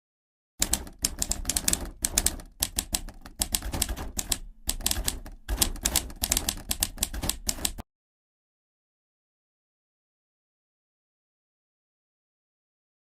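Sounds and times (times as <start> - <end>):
typewriter keys clacking: 0.6 - 7.8.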